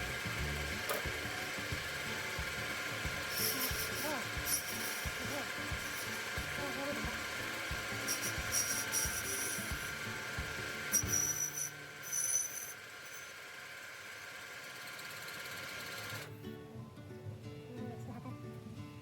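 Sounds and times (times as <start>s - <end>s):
high-pitched cutting sound: 0.0s - 13.7s
lathe whining: 0.0s - 16.3s.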